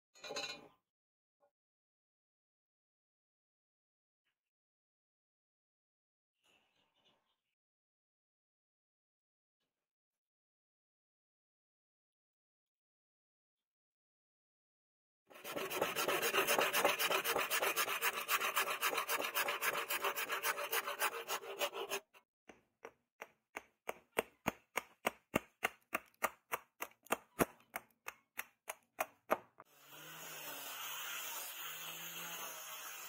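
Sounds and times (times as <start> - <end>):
file scraping strokes: 15.3 - 22.2.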